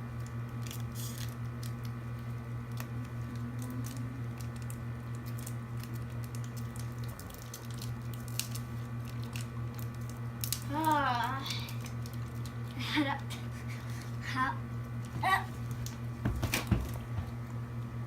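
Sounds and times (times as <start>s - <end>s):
low electrical hum: 0.0s - 18.0s
candy sucking and chewing: 0.2s - 12.8s.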